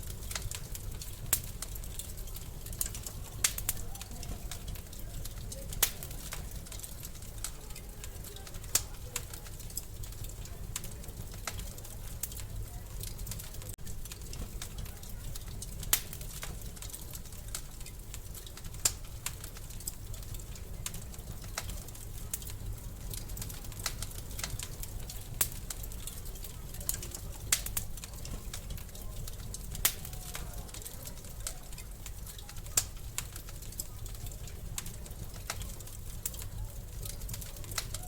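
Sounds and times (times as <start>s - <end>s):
fire popping: 0.0s - 38.0s
wood fire crackling: 0.0s - 38.0s.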